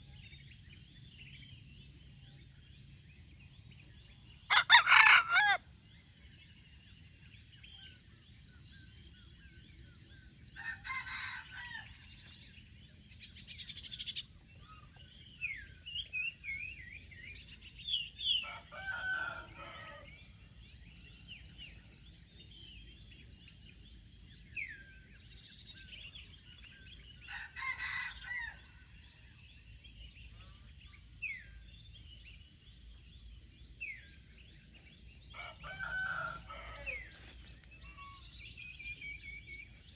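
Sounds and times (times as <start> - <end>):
insect drone: 0.0 - 39.9
rooster crowing: 4.5 - 5.6, 10.6 - 12.1, 18.3 - 20.2, 35.3 - 37.4
small birds chirping: 11.6 - 20.0.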